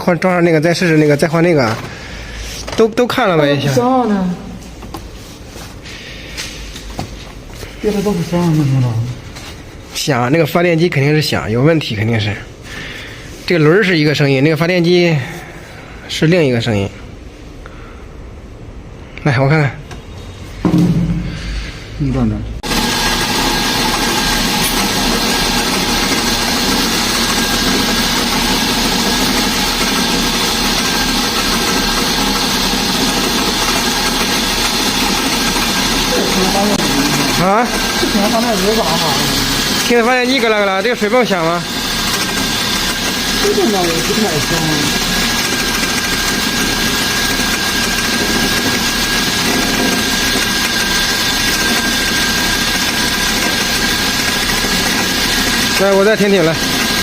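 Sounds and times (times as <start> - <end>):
alternator rattle: 22.8 - 57.0.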